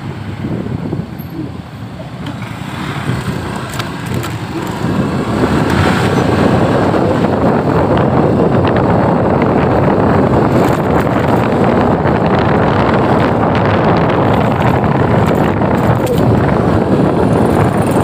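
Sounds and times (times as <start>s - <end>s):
traffic and road noise: 0.0s - 18.0s
wind buffeting microphone: 0.0s - 18.0s.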